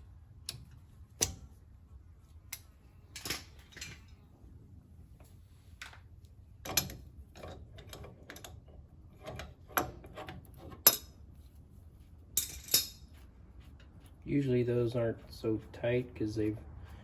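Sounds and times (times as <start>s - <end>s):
hand tools clinking on metal: 12.4s - 13.1s.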